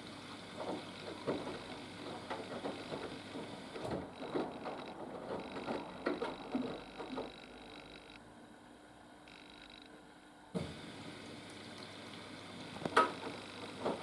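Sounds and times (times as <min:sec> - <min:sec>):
laundry and water sloshing: 0:00.0 - 0:07.3, 0:12.2 - 0:14.0
washing machine motor humming: 0:00.0 - 0:14.0.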